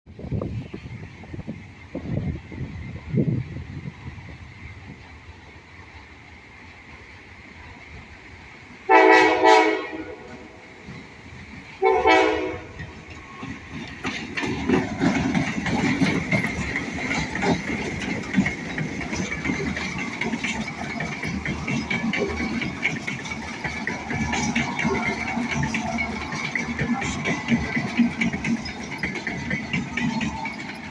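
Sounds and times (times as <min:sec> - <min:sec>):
rail clatter: 0:00.1 - 0:30.9
train rumbling past: 0:00.1 - 0:30.9
train air horn blasts: 0:08.9 - 0:10.6, 0:11.8 - 0:12.8.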